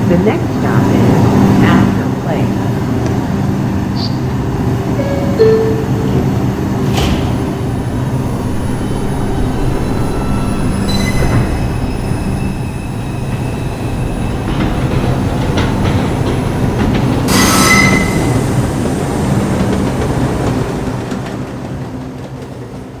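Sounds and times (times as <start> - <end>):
subway train humming: 0.0 - 23.0
high-pitched wheel squeals: 17.3 - 18.6.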